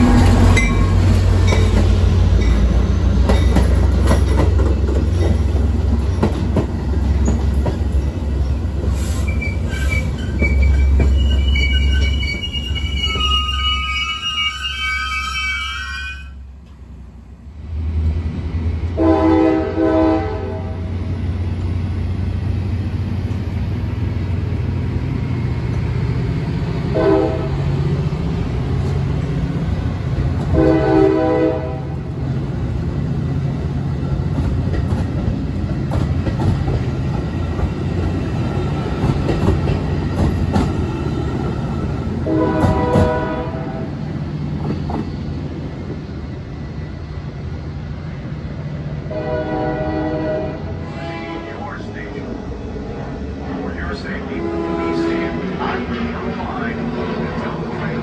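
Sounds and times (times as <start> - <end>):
wheels clacking over rails: 0.0 - 9.0, 34.2 - 43.2
diesel train rumble: 0.0 - 58.0
train air horn blasts: 19.0 - 20.9, 26.9 - 27.6, 30.5 - 32.0, 42.2 - 43.9, 49.1 - 51.8, 54.4 - 55.5.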